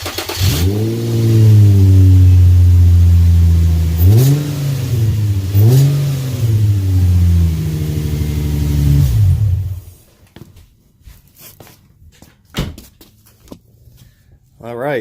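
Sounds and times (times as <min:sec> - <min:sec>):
car engine revving and idling: 0:00.0 - 0:10.0.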